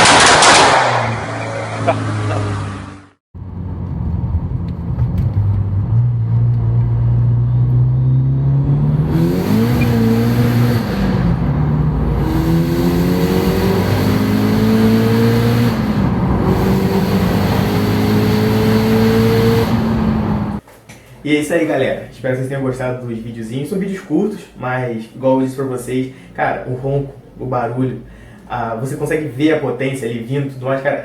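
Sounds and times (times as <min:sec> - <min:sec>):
car engine revving under load: 0:00.0 - 0:20.6.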